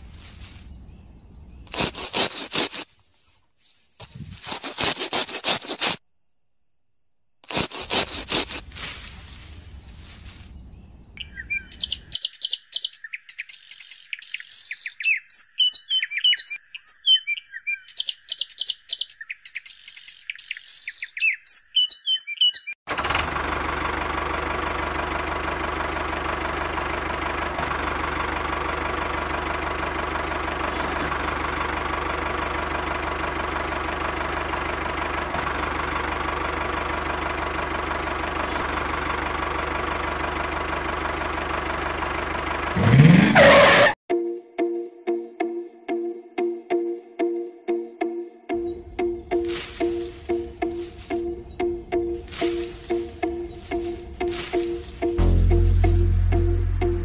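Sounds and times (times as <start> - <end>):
rustling and scraping: 0.0 - 0.8, 1.7 - 6.0, 7.5 - 10.6, 49.4 - 51.3, 52.2 - 56.2
steady engine drone: 7.5 - 10.6, 22.9 - 44.0, 48.6 - 57.0
birds chirping: 9.3 - 22.8, 48.6 - 55.2.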